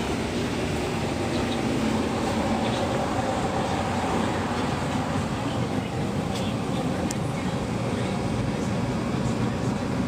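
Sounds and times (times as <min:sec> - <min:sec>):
faint indistinct voices: 0:03.6 - 0:10.0.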